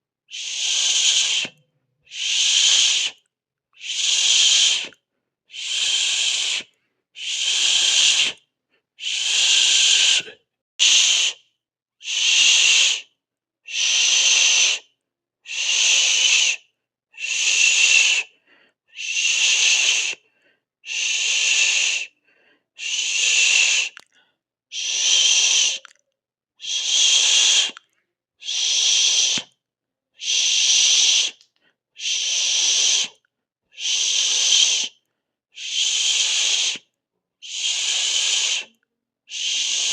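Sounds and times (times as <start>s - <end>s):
sharp hissing bursts: 37.5s - 38.7s.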